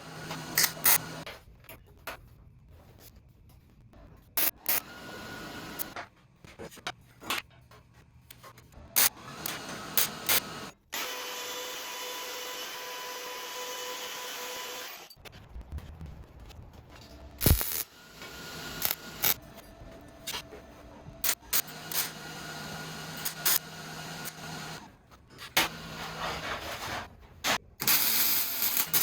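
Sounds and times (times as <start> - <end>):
power tool running: 0.0 - 1.2, 4.7 - 6.0, 9.0 - 15.1, 17.4 - 19.4, 21.2 - 24.9, 25.6 - 26.4, 27.8 - 29.0.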